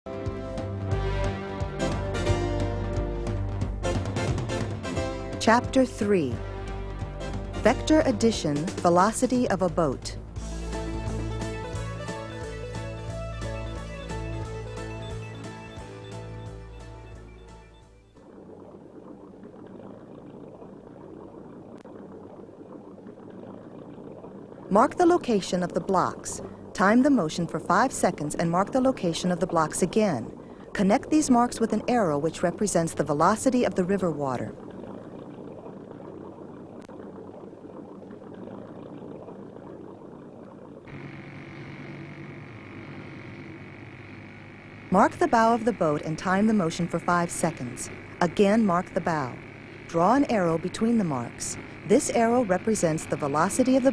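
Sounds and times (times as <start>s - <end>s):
river water running: 0.1s - 53.9s
title music: 10.0s - 17.6s
steady background hum and hiss: 18.4s - 53.9s.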